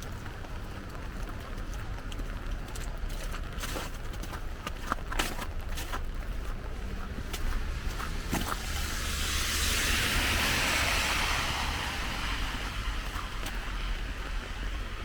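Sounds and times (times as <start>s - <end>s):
footsteps on wet pavement: 0.0s - 15.0s
car tyres hissing on wet street: 6.1s - 15.0s.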